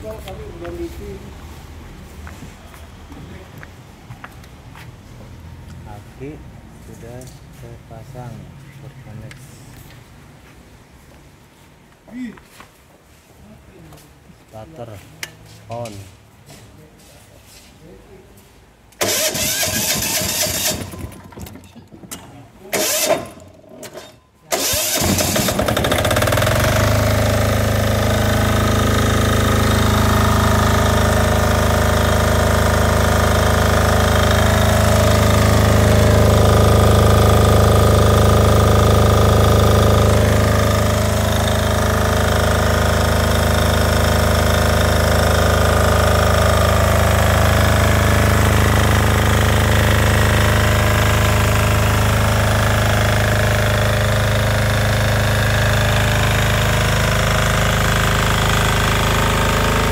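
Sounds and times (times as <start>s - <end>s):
electric starter cranking: 18.9s - 59.9s
diesel generator engine running: 19.0s - 59.9s.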